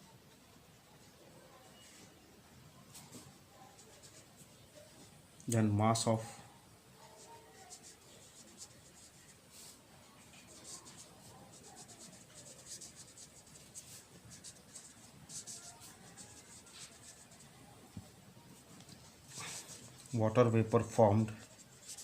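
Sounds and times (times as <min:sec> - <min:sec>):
pen scratching handwriting: 0:07.2 - 0:09.4, 0:10.4 - 0:17.5, 0:21.4 - 0:22.0.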